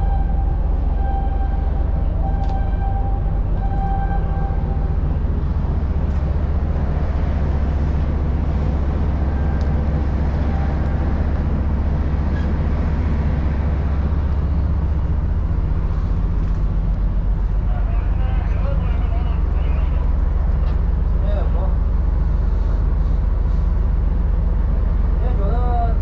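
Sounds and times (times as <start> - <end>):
deep engine rumble: 0.0 - 26.0.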